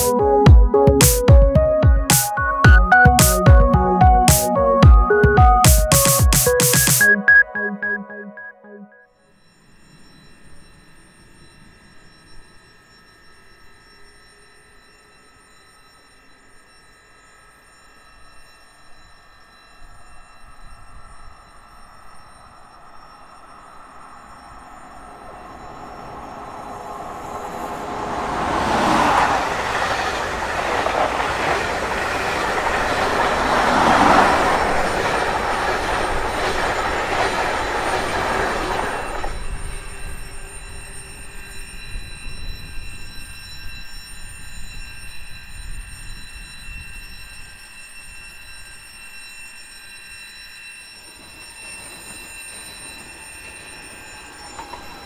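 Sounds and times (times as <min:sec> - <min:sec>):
high-speed train passing: 0:00.0 - 0:07.2, 0:19.9 - 0:44.8, 0:51.0 - 0:55.0.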